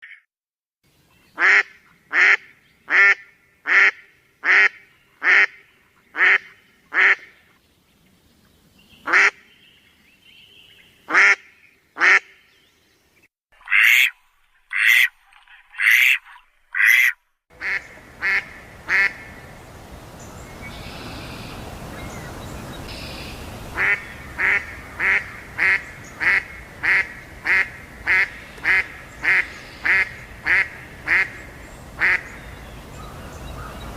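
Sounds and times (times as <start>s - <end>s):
steady background hiss: 17.6s - 33.9s
bird calling: 20.2s - 33.9s.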